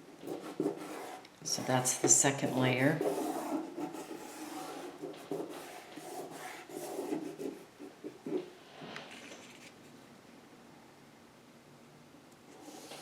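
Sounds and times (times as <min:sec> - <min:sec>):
paper scraping on surface: 0:00.2 - 0:09.8, 0:12.6 - 0:13.0.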